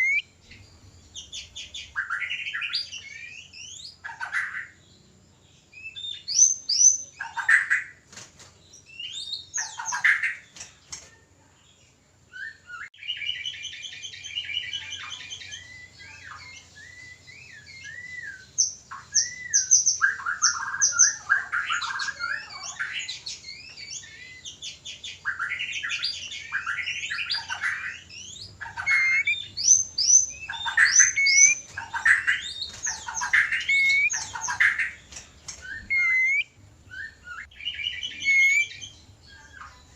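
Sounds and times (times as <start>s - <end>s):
bird whistled song: 0.0s - 5.0s, 5.6s - 8.0s, 8.7s - 11.0s, 12.3s - 39.9s
sharp bird chirps: 0.0s - 11.1s, 12.3s - 39.9s.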